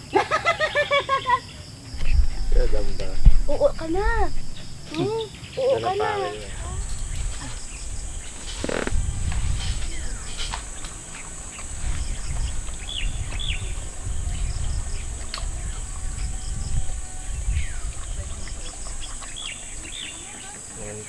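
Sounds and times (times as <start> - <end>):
high insect drone: 0.0 - 21.0
bird chirps: 0.1 - 21.0
low rumble: 2.0 - 4.9.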